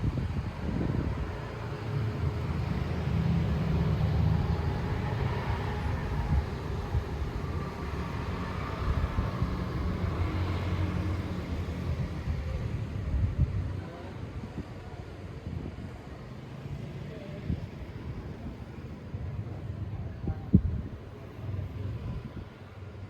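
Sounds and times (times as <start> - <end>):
wind on microphone: 0.0 - 16.1, 19.9 - 22.6.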